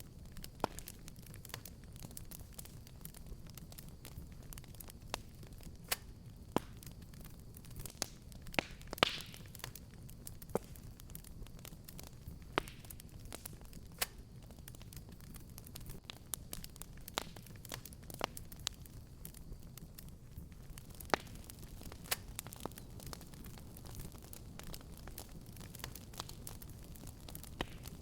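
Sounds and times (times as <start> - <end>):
fire hissing flare: 0.0 - 28.0
wood fire crackling: 0.0 - 28.0.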